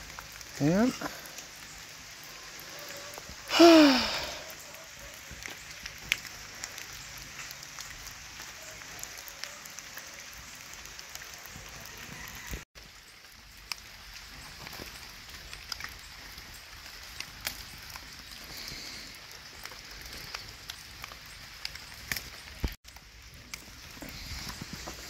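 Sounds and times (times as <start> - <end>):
light rain falling: 0.0 - 25.0
raindrops tapping: 0.0 - 25.0.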